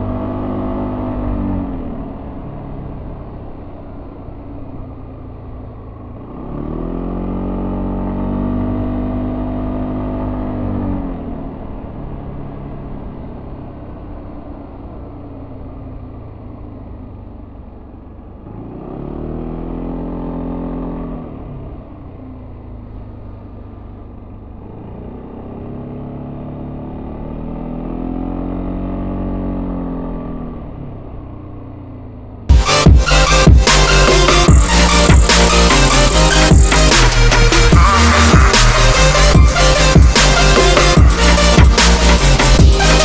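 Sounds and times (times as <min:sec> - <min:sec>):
scooter engine revving: 0:31.7 - 0:43.0.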